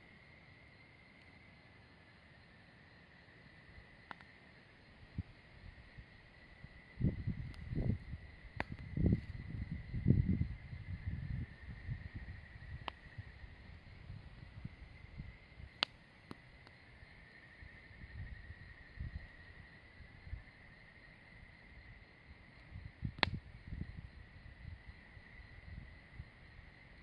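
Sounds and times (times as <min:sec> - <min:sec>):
campfire low rumble: 0:04.8 - 0:27.0
fire popping: 0:23.1 - 0:23.5.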